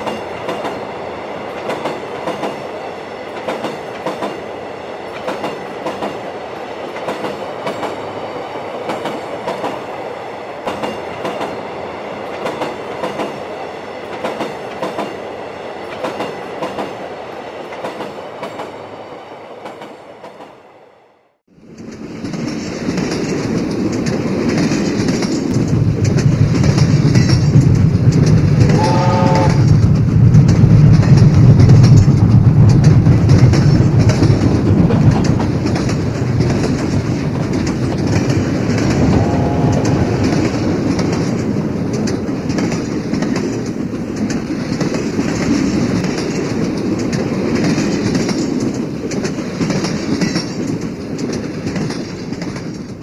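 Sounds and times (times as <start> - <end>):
train wheels clacking on rail joints: 0.0 - 18.8, 19.5 - 20.6, 21.7 - 53.0
train horn blast: 28.6 - 29.8, 38.8 - 40.3.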